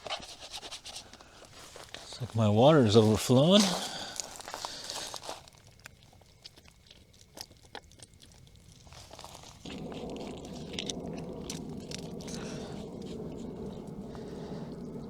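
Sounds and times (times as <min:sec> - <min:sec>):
water pouring from a bag: 0:01.2 - 0:06.4, 0:08.4 - 0:15.0.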